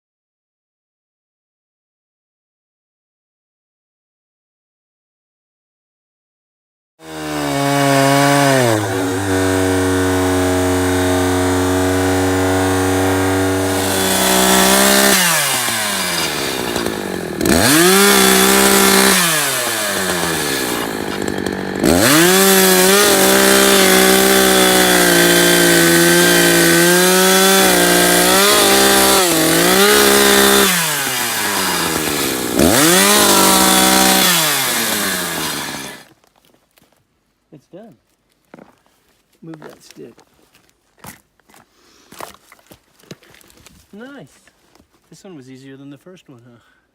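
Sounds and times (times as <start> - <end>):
chainsaw idling: 7.0 - 36.1
chainsaw revving cutting wood: 7.0 - 36.1.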